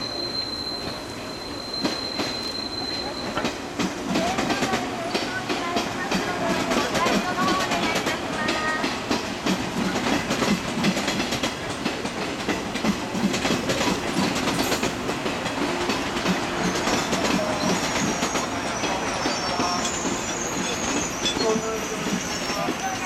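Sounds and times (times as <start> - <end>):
high wheel squeal: 0.0 - 3.6, 16.6 - 23.0
train wheels clacking over rail joints: 1.8 - 23.0.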